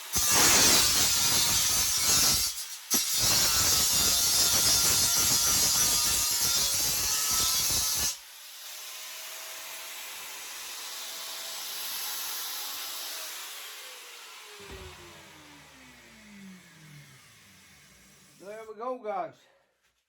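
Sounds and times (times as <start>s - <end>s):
angle grinder cutting steel: 0.0s - 18.6s
grinder disc spinning down whine: 14.6s - 18.4s.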